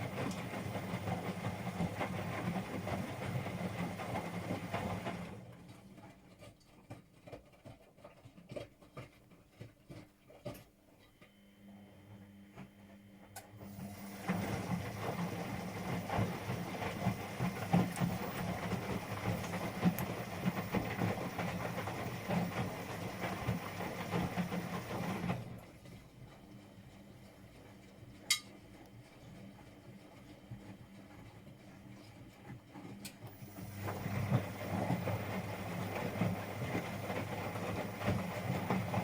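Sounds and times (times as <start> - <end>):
washing machine humming: 0.0 - 6.5, 11.2 - 39.0
washing machine rattling: 13.9 - 25.6.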